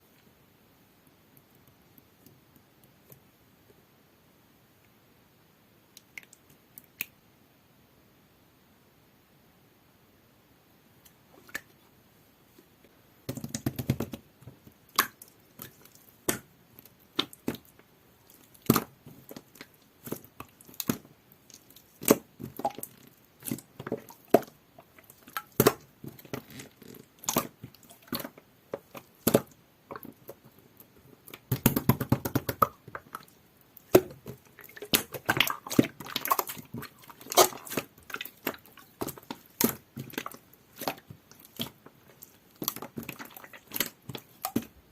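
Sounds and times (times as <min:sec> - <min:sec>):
wet squishing of slime: 0:05.9 - 0:07.2, 0:11.0 - 0:11.8, 0:13.3 - 0:44.9.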